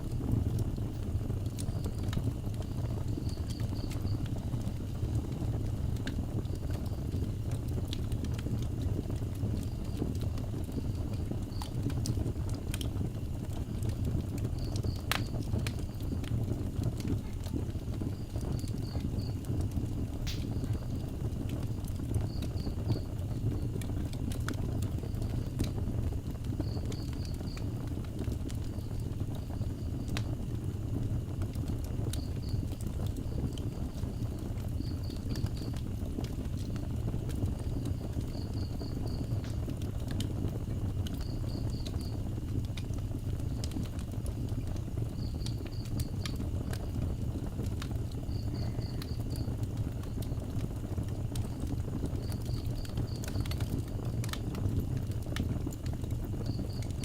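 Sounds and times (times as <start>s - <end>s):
fire crackles and pops: 0.0s - 57.0s
wood fire crackling: 0.0s - 57.0s
insect chirping: 37.6s - 39.7s, 40.8s - 42.3s, 45.0s - 47.4s, 48.2s - 50.4s, 51.5s - 53.7s, 56.3s - 57.0s.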